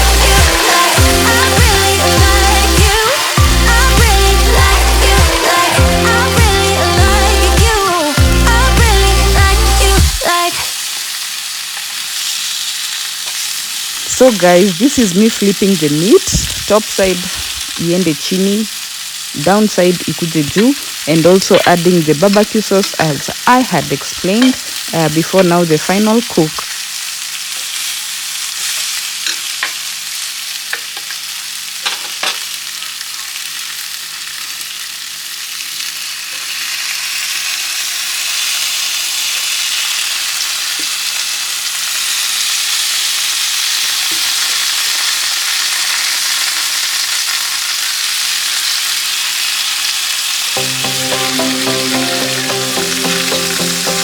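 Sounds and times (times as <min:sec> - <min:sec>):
meat sizzling on a grill: 0:00.0 - 0:54.0.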